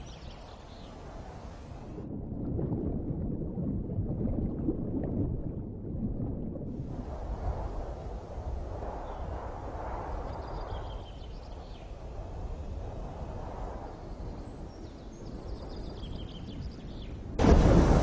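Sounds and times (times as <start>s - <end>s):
wind: 0.0s - 18.0s
sea surf: 17.4s - 18.0s.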